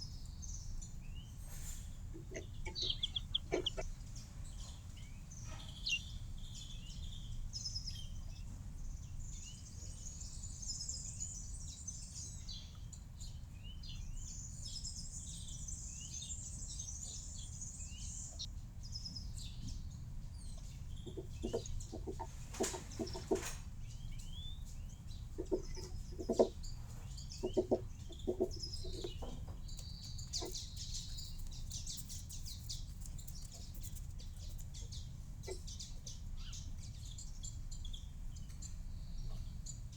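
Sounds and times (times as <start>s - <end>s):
low background rumble: 0.0s - 9.4s
small birds chirping: 0.0s - 39.9s.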